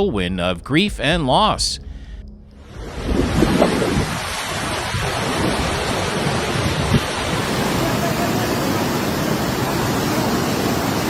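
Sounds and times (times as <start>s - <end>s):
wind buffeting microphone: 1.9s - 11.0s
rushing storm water: 2.6s - 11.0s.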